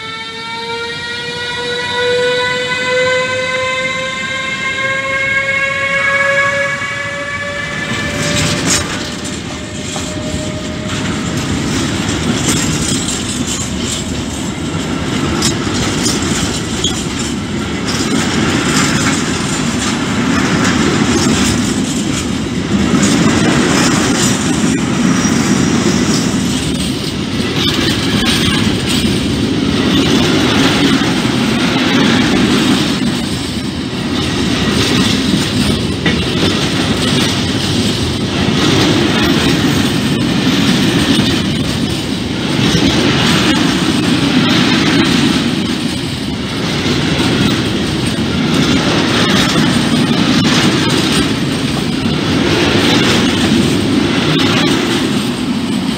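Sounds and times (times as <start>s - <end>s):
freight train wheels rumbling: 0.0s - 55.9s
clickety-clack over rail joints: 1.7s - 55.9s.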